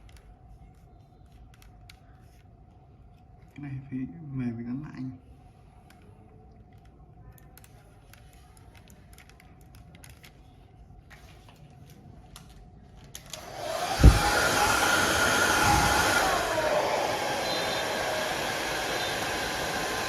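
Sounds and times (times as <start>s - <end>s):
loud steady rushing noise: 13.4s - 20.0s.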